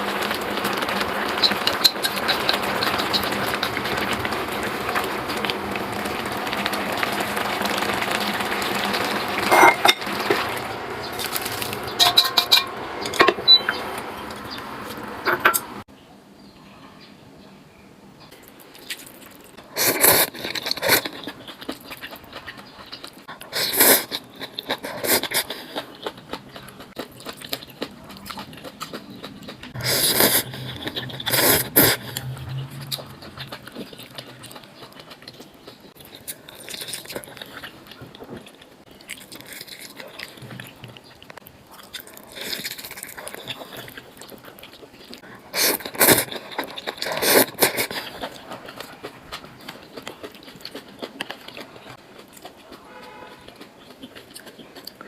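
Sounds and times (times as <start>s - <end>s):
chewing: 0.0s - 15.8s, 18.3s - 55.0s
person slurping noodles: 19.7s - 21.2s, 23.4s - 25.9s, 29.8s - 34.1s, 45.5s - 48.4s.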